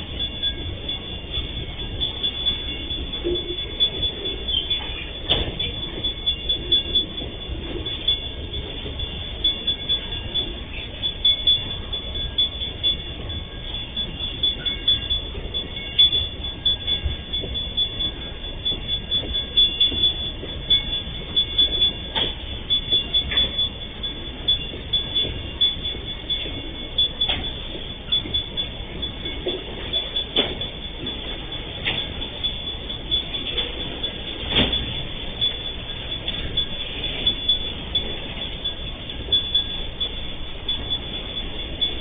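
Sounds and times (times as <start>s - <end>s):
continuous train rumble: 0.0s - 42.0s
steady high-pitched tone: 0.0s - 42.0s
train wheels clacking on rail joints: 0.1s - 42.0s.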